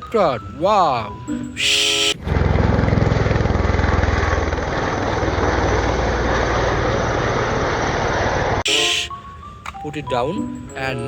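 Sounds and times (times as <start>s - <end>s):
helicopter rotor and engine: 2.0s - 8.6s.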